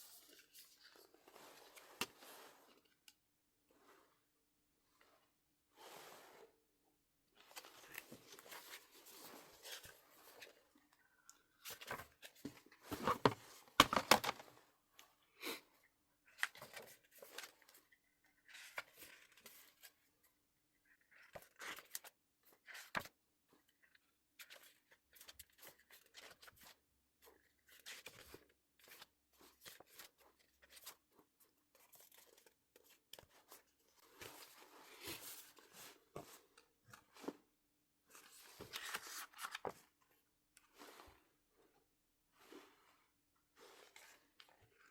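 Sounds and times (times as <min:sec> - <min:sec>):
paper and plastic rustling: 0:11.6 - 0:14.5.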